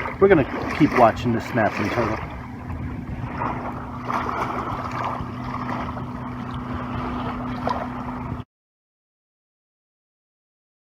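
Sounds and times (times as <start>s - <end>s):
rushing wind: 0.0s - 8.4s
low motor hum: 0.0s - 8.5s
water noise: 0.0s - 8.5s.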